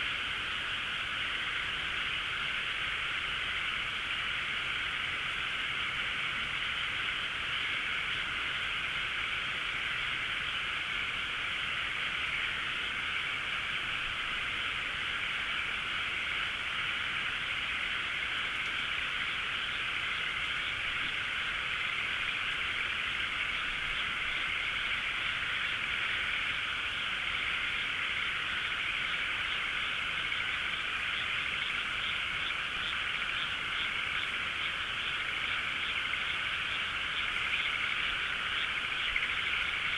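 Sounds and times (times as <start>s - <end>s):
frogs calling: 0.0s - 39.9s.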